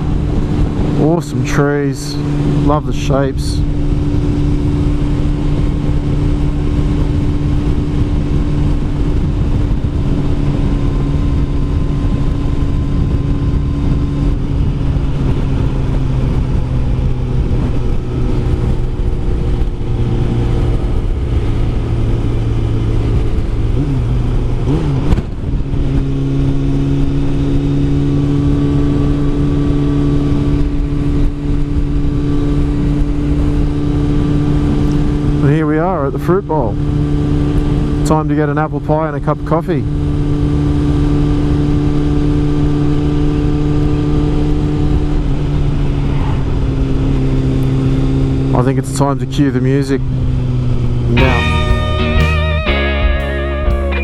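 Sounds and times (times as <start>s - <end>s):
wind noise: 0.0s - 35.4s, 39.9s - 48.5s
motorcycle engine cruising: 0.0s - 54.0s.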